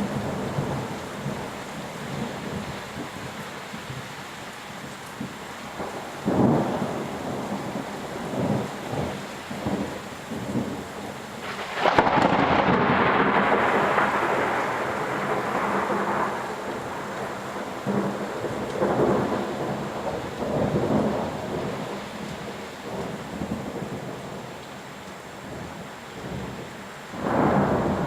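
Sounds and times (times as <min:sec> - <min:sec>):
steady rain: 0:00.0 - 0:28.0
thunder: 0:05.2 - 0:10.8, 0:11.4 - 0:22.0, 0:27.2 - 0:28.0.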